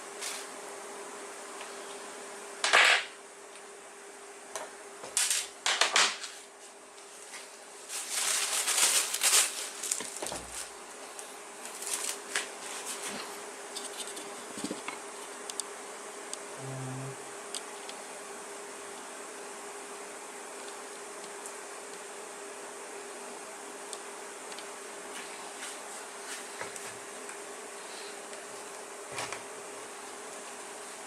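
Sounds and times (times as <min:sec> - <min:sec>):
faint steady hum: 0:00.0 - 0:31.0
tools scraping and rattling: 0:11.7 - 0:15.0.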